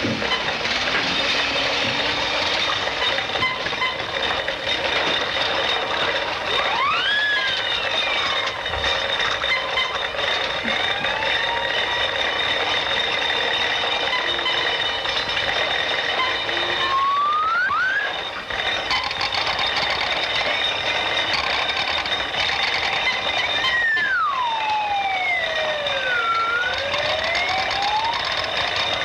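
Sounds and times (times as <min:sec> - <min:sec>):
whistle-like sound effect: 0:06.6 - 0:08.5, 0:16.2 - 0:18.2, 0:23.6 - 0:28.4.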